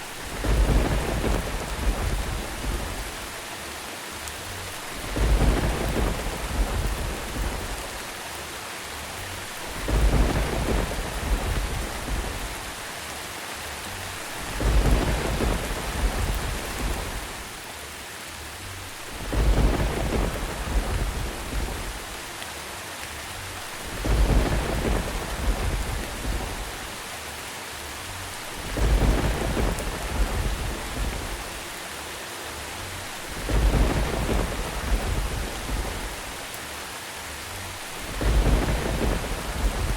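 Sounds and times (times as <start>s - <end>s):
thunder rumble: 0.0s - 3.4s, 4.8s - 8.1s, 9.4s - 12.9s, 14.0s - 17.6s, 18.9s - 22.3s, 23.5s - 27.0s, 28.3s - 31.8s, 32.9s - 36.5s, 37.7s - 39.9s
steady rain: 0.0s - 39.9s.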